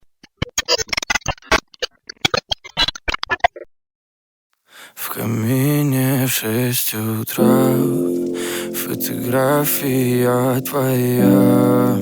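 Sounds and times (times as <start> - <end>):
pop song with person singing: 5.0 - 12.0.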